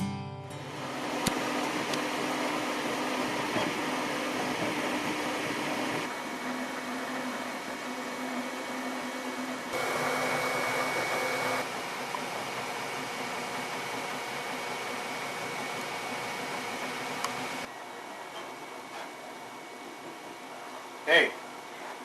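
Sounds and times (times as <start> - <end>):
stepper motor tones: 0.6 - 17.7
printer fan noise: 0.6 - 22.0.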